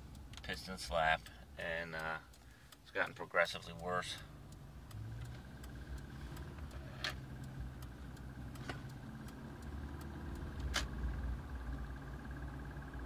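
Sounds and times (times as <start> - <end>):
faint light ticking: 0.0 - 13.0
engine running with low hum: 3.7 - 13.0.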